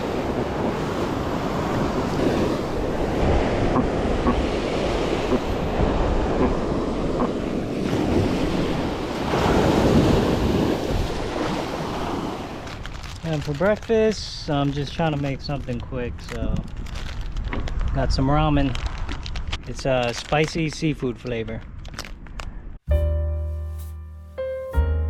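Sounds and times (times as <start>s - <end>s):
ocean surf washing onto beach: 0.0s - 15.8s
wind rumbling on microphone: 0.0s - 22.8s.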